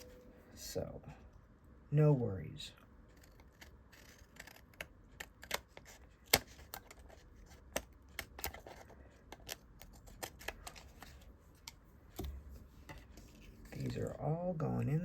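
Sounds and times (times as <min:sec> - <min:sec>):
scissors snipping paper: 0:03.2 - 0:11.1.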